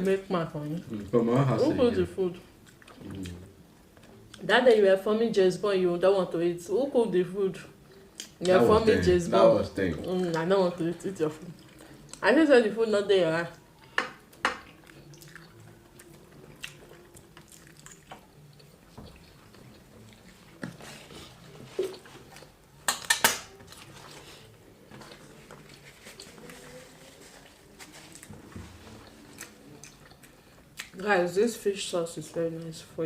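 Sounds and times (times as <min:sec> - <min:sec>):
chewing and biting: 0:14.6 - 0:26.8, 0:28.9 - 0:31.0.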